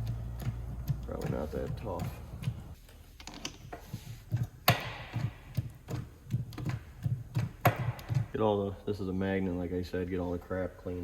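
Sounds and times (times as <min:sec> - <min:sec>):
tool knocking and tapping: 0:00.0 - 0:08.5.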